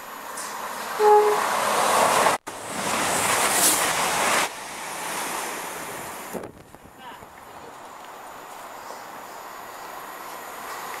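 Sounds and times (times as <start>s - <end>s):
train wheel and air rush: 0.0s - 6.7s
two-tone train horn: 1.0s - 1.5s.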